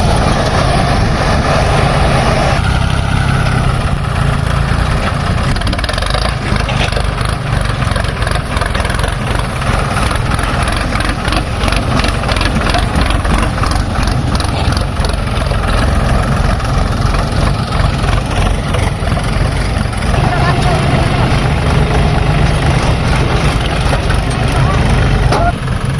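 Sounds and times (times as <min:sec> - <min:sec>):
diesel machinery engine running: 0:00.0 - 0:25.9
clatter of knocks: 0:04.4 - 0:24.7.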